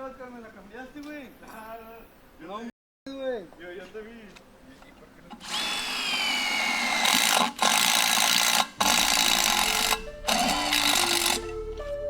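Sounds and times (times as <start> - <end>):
power tool whining and hissing: 5.3 - 11.6.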